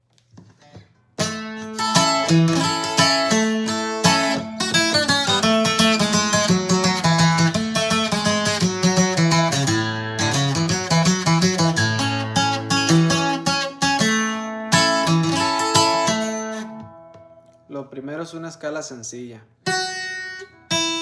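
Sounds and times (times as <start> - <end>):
acoustic guitar picking melody: 0.5 - 17.7, 19.6 - 21.0
faint taps: 16.7 - 17.6.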